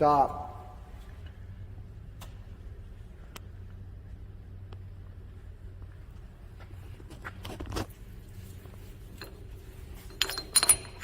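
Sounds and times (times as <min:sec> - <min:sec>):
low hum: 0:00.0 - 0:11.0
metal clinks with ringing: 0:09.0 - 0:11.0.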